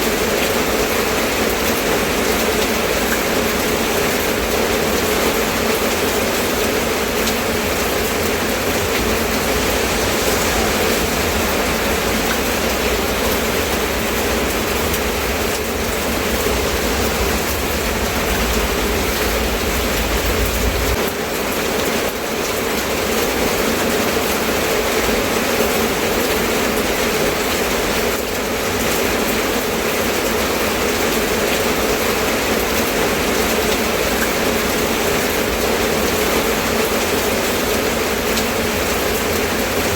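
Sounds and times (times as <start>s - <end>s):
steady rain falling: 0.0s - 39.9s
low rumble: 5.9s - 21.1s.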